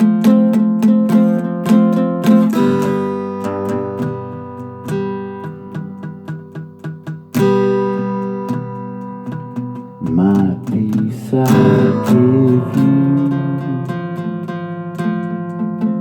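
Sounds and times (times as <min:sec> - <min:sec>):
acoustic guitar picked and strummed: 0:00.0 - 0:16.0
person singing wordless melody: 0:10.0 - 0:14.6.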